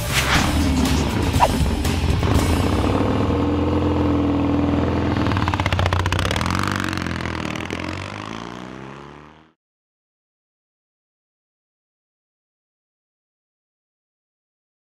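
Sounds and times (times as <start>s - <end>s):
motorcycle engine revving: 0.2s - 9.6s.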